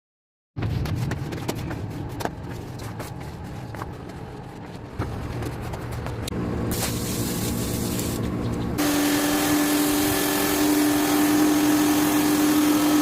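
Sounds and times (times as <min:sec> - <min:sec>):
water spraying hiss: 0:06.7 - 0:08.2, 0:08.8 - 0:13.0.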